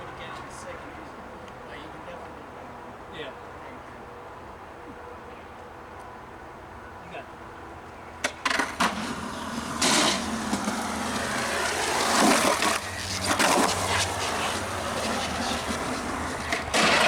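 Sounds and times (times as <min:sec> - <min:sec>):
skateboard clacks: 0:08.2 - 0:17.0
skateboard scrapes and impacts: 0:08.2 - 0:17.0
skateboard wheels rolling: 0:08.2 - 0:17.0.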